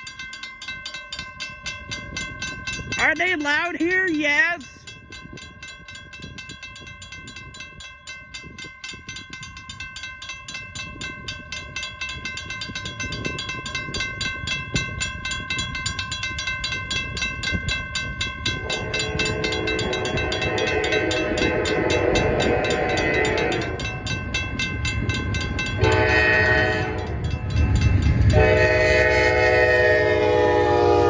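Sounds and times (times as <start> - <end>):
crossing warning bells ringing: 0.0 - 31.0
freight train rumble: 0.0 - 31.0
locomotive horn: 18.6 - 23.9, 25.8 - 27.2, 28.2 - 31.0.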